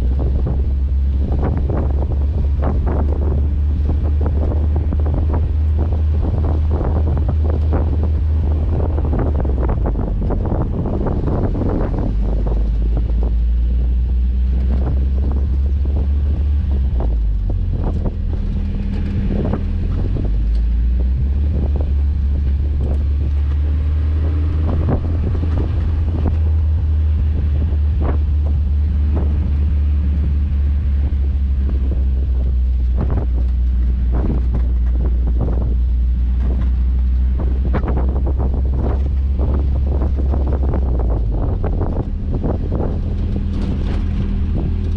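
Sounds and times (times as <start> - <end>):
car engine running: 0.0 - 44.9
wind buffeting microphone: 0.0 - 44.9.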